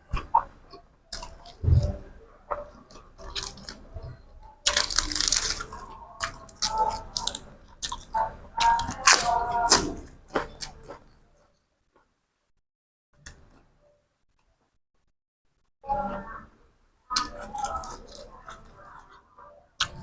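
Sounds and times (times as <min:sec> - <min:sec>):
chewing and crunching food: 0:00.1 - 0:11.5, 0:17.1 - 0:20.0.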